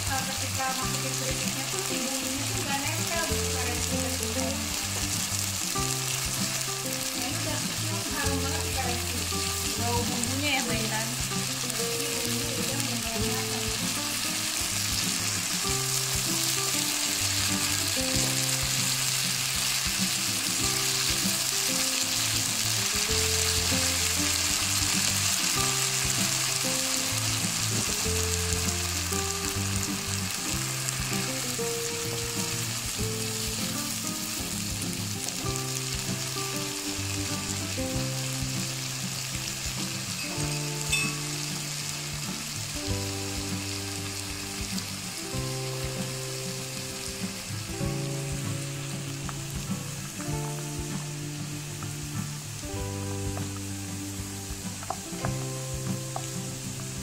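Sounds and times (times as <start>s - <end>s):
background music with held notes: 0.0s - 57.0s
spice paste sizzling in oil: 0.0s - 57.0s.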